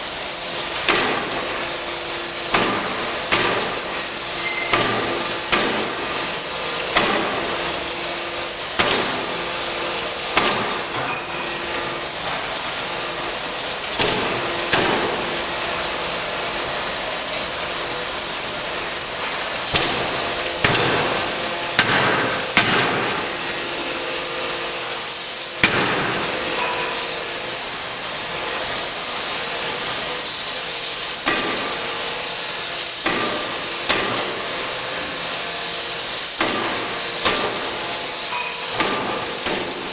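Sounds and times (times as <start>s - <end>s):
steady hiss: 0.0s - 39.9s
forging hammer striking metal: 2.5s - 6.2s, 10.3s - 11.5s, 19.8s - 23.6s, 25.6s - 27.4s, 36.4s - 39.9s.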